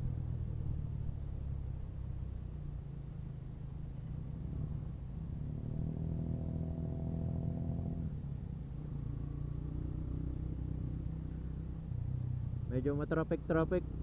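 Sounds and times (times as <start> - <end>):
engine revving: 4.5 - 8.1.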